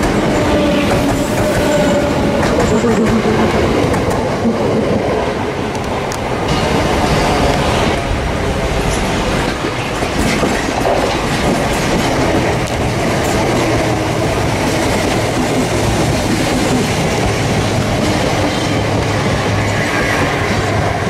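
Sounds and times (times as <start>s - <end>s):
electric train passing: 0.0s - 21.0s
wheels clicking over rail joints: 8.8s - 20.9s.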